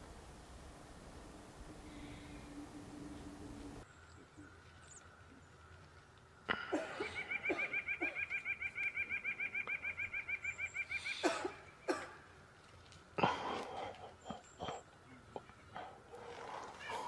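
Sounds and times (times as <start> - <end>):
woodpecker laughing call: 7.0 - 11.3.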